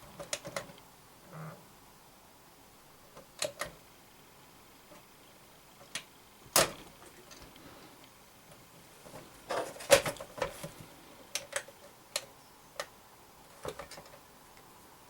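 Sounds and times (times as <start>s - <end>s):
sharp irregular clicks and taps: 3.2s - 3.8s, 11.3s - 13.0s.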